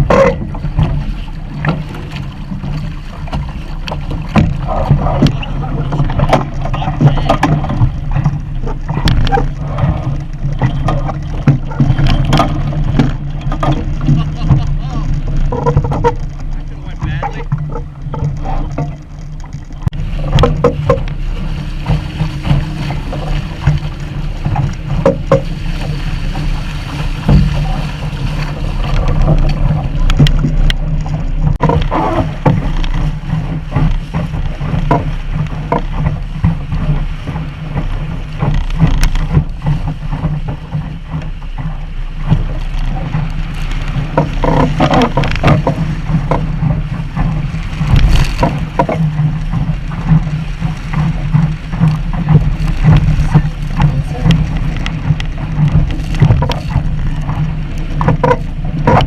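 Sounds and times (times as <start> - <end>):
water splashing against hull: 0.0 - 59.0
wind buffeting microphone: 0.0 - 59.0
knocks on boat hull: 21.9 - 25.5, 27.2 - 27.9, 28.9 - 59.0.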